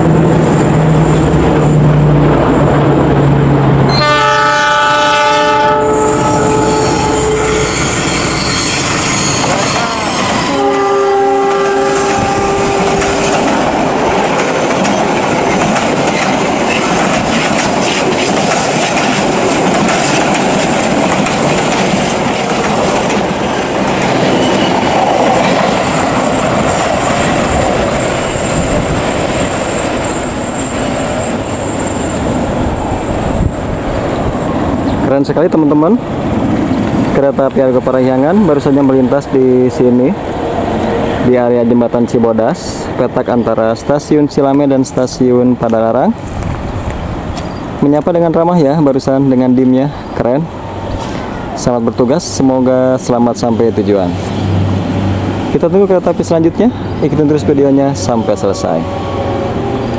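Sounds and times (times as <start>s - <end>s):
diesel locomotive engine: 0.0s - 59.9s
train horn: 3.9s - 8.8s, 9.5s - 13.4s
train wheels clattering: 11.6s - 35.0s.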